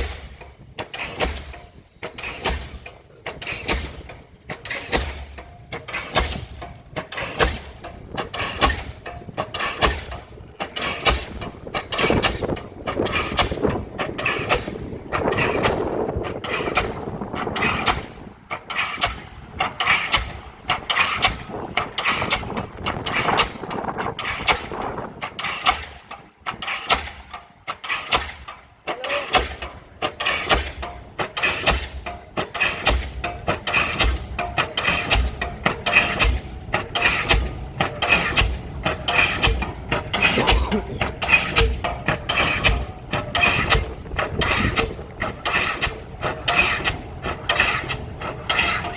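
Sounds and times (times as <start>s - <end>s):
rig engine running: 29.0s - 48.9s.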